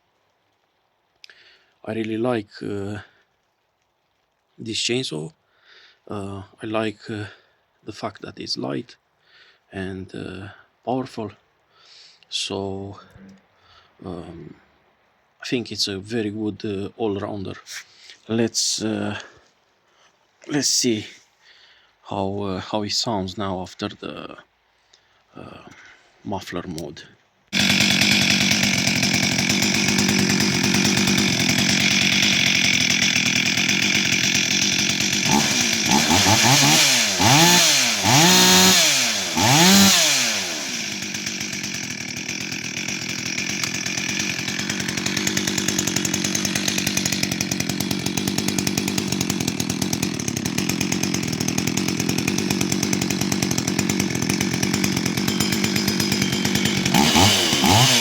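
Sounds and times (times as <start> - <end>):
chainsaw running and revving: 27.5 - 58.0.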